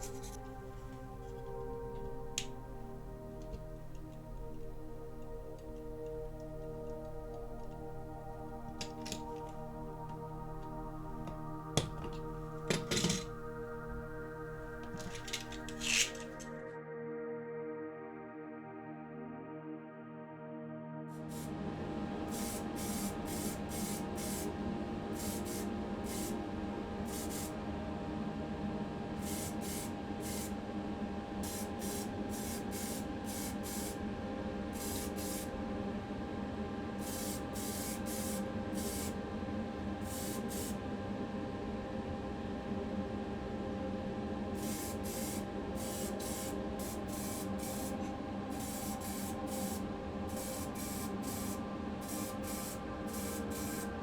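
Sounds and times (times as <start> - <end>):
spray can hissing bursts: 0.0 - 16.5, 22.3 - 24.4, 25.2 - 26.4, 27.1 - 27.5, 29.2 - 30.5, 31.4 - 34.0, 34.8 - 35.5, 37.0 - 39.1, 40.1 - 40.7, 44.6 - 54.0
steady hum: 0.0 - 16.6.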